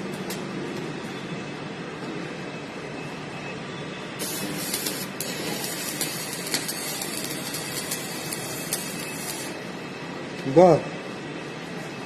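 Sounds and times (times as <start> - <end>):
bright hiss: 4.2 - 9.6
plate rolling machine running: 4.2 - 9.7.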